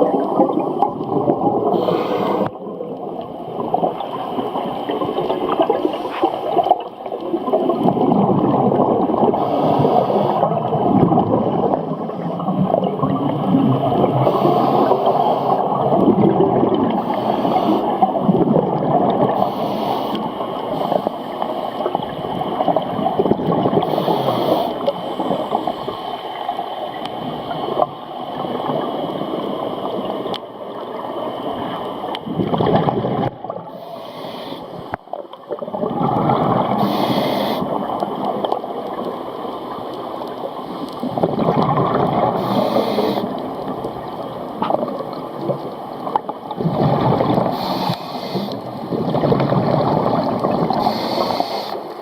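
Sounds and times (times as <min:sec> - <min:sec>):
exhaled bubbles gurgling underwater: 0:00.0 - 0:52.0
regulator hiss: 0:17.0 - 0:18.0, 0:19.4 - 0:21.3, 0:36.8 - 0:37.8, 0:42.4 - 0:43.4, 0:47.5 - 0:48.7, 0:50.8 - 0:52.0.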